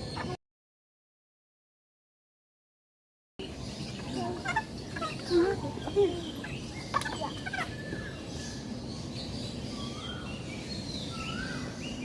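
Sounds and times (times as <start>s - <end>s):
birds calling: 0.0s - 0.4s, 3.4s - 12.0s.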